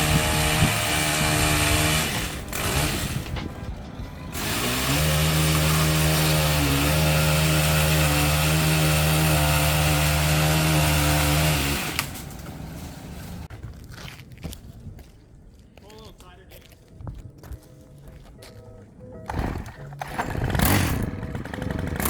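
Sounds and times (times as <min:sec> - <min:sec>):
chainsaw revving: 0:00.0 - 0:03.4, 0:04.3 - 0:13.5, 0:20.0 - 0:22.0.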